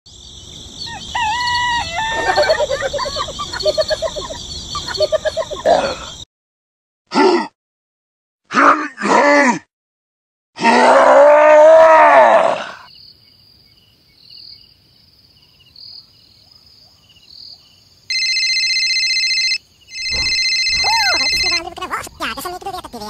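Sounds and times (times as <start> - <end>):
loud groan-like call: 10.6 - 12.9
faint high tone: 20.1 - 23.0.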